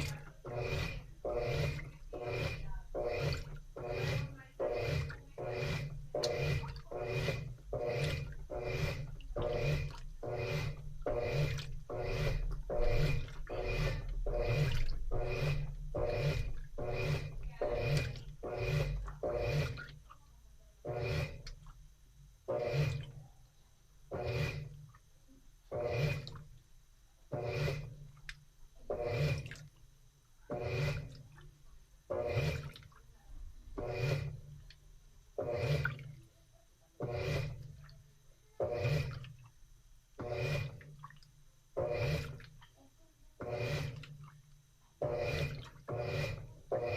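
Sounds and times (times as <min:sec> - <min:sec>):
washing machine swishing water: 0:00.0 - 0:46.9.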